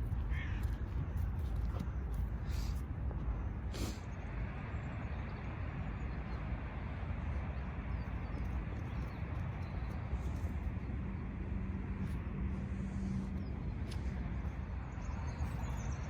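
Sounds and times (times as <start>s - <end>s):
low outdoor background rumble: 0.0s - 16.0s.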